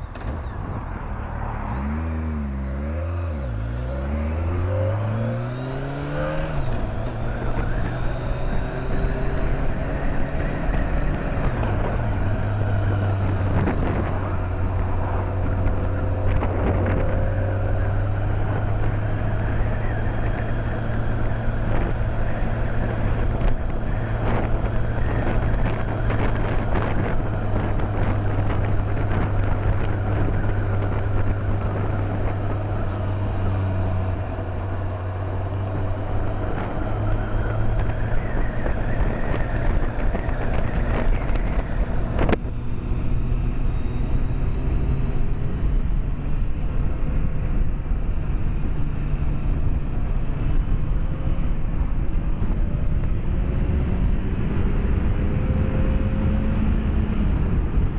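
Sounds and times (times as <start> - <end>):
motorcycle engine cruising: 0.0 - 57.9
wind rushing over helmet: 6.5 - 43.7.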